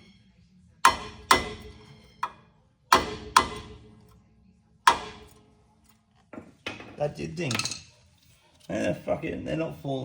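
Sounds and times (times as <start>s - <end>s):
hammer tapping on metal: 0.8s - 3.8s.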